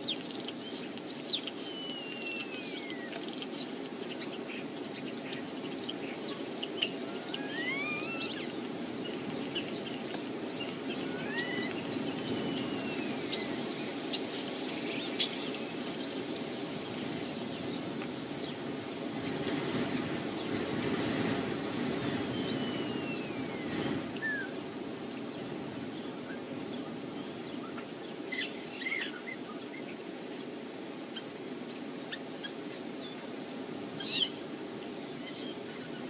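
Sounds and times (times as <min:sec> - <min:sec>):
birds chirping: 0:00.0 - 0:18.6, 0:19.2 - 0:30.0, 0:31.2 - 0:36.0
wind rumble: 0:02.8 - 0:28.7.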